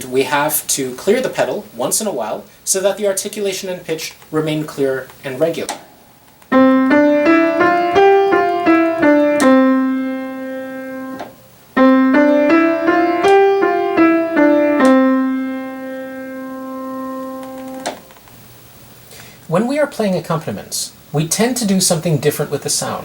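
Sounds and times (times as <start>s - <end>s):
piano phrase: 6.5s - 18.1s.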